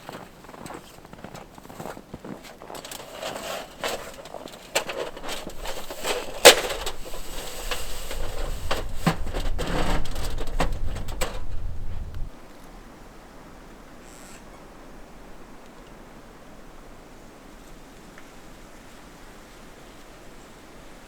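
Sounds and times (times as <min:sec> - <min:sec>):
firewood knocking and cracking: 0:02.6 - 0:12.3.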